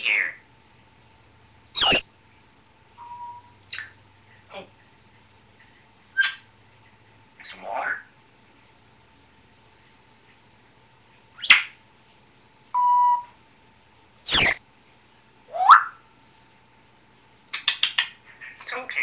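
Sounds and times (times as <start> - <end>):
parrot whistling and calling: 1.7 - 2.3, 6.2 - 6.5, 11.4 - 11.8, 12.8 - 13.3, 14.2 - 14.8, 15.5 - 16.0.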